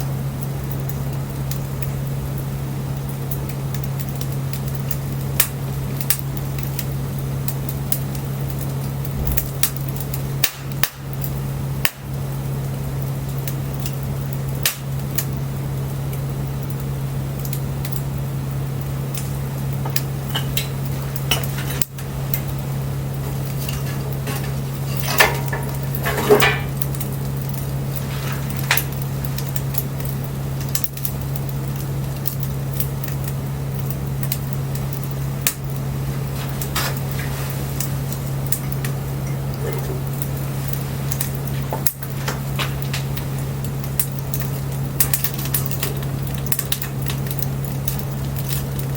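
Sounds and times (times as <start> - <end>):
wood fire crackling and popping: 0.0 - 48.9.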